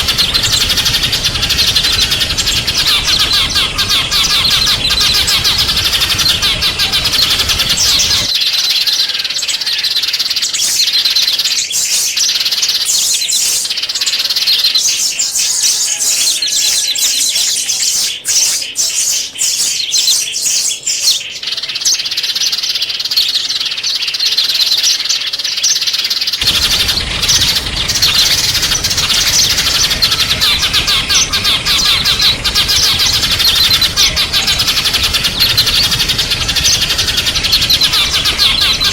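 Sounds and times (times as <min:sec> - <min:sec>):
low background hum: 0:00.0 - 0:08.3, 0:26.4 - 0:38.9
songbirds chirping: 0:00.0 - 0:38.9.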